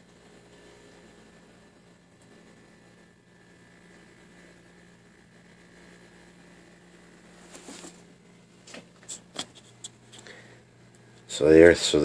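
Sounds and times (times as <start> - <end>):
fridge compressor humming: 0.0 - 12.0
handling rustles: 7.4 - 8.0.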